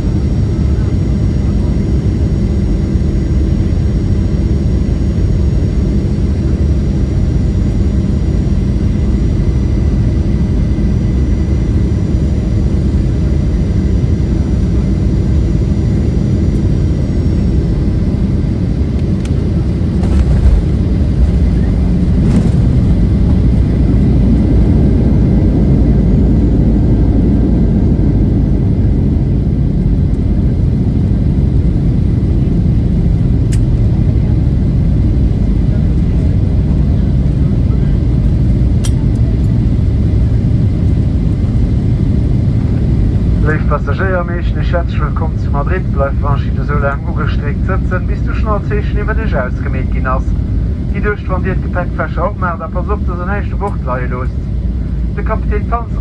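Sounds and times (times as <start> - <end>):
jet engine drone and airflow: 0.0 - 56.0
runway rollout rumble: 18.2 - 25.6.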